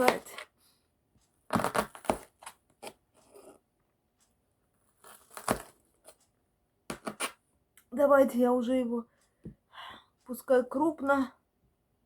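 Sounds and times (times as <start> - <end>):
knife chopping onion on board: 0.0 - 0.4, 1.5 - 2.3, 6.9 - 7.3.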